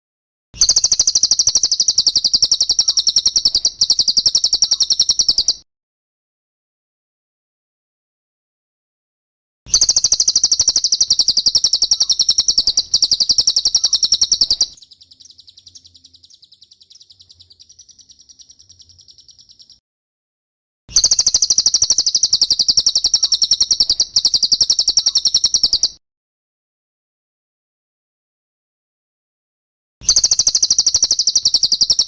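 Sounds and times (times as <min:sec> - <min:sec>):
bird high-pitched trill: 0:00.6 - 0:05.6, 0:09.7 - 0:19.8, 0:20.9 - 0:26.0, 0:30.0 - 0:32.0.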